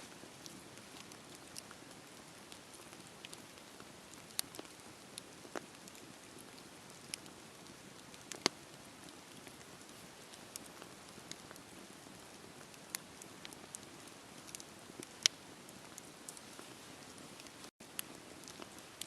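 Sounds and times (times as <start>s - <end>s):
bonfire crackling and popping: 0.0s - 19.0s.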